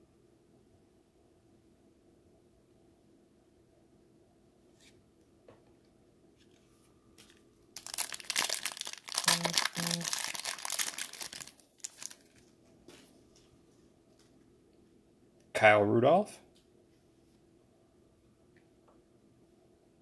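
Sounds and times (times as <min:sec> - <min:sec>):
card pack wrapper crinkling: 0:07.2 - 0:12.5.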